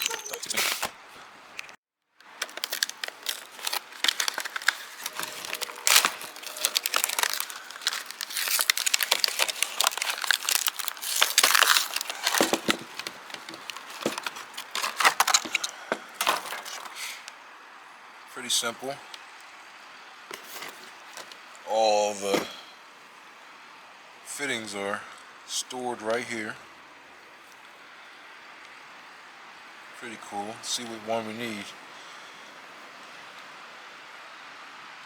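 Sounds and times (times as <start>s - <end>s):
packaging crinkling and tearing: 0.0s - 1.0s, 1.6s - 17.3s, 20.3s - 21.5s.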